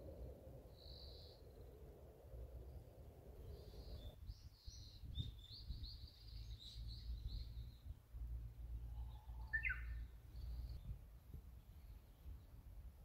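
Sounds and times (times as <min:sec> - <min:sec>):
small birds chirping: 0:00.7 - 0:01.8, 0:02.6 - 0:08.1, 0:08.7 - 0:12.7.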